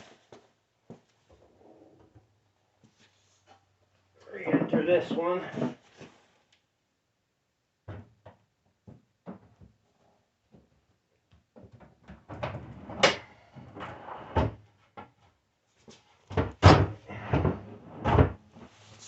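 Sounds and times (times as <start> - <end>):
wooden drawer scraping and clattering: 16.6 - 18.4.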